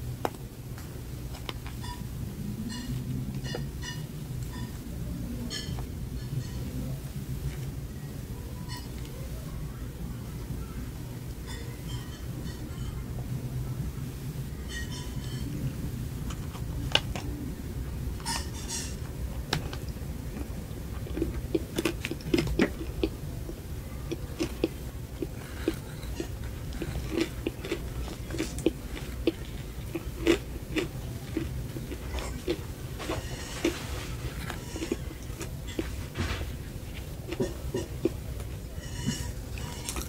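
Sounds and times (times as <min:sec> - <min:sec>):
low steady hum: 0:00.0 - 0:40.0
biting and chewing cupcake: 0:18.2 - 0:40.0.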